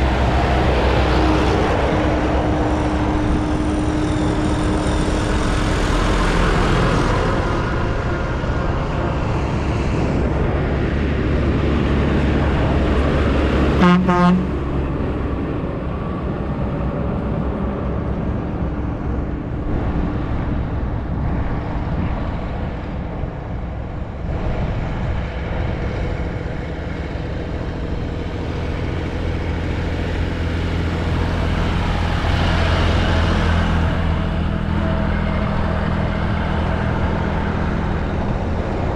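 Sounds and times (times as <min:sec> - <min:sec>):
tractor engines running: 0:00.0 - 0:38.9
horn toot: 0:13.8 - 0:14.6.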